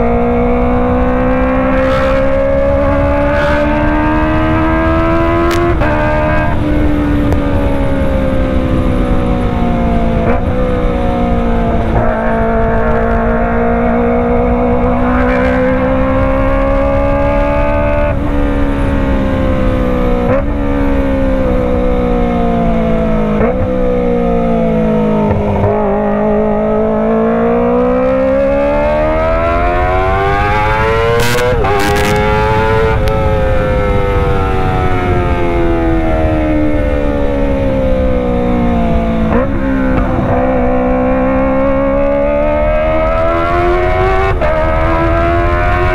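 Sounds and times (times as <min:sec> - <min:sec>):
motorcycle engine while riding: 0:00.0 - 0:45.9.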